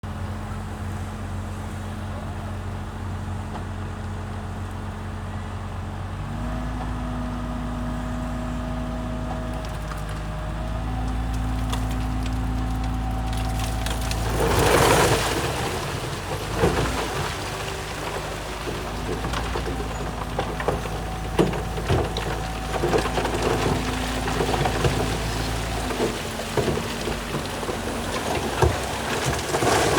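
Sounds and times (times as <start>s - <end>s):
bulldozer diesel engine: 0.0s - 29.9s
rocks clattering: 9.5s - 29.9s
stone crunching as pushed: 9.6s - 29.9s.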